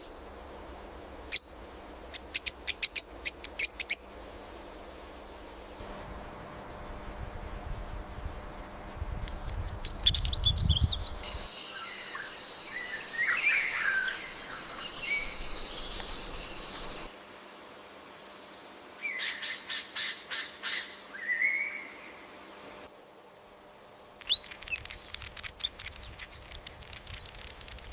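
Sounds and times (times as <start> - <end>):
bird calls and chirps: 9.3 - 17.1, 24.2 - 27.9.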